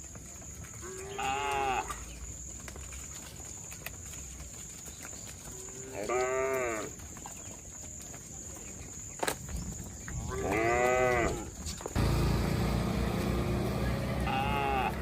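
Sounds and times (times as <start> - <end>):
cattle mooing: 10.4 - 15.0.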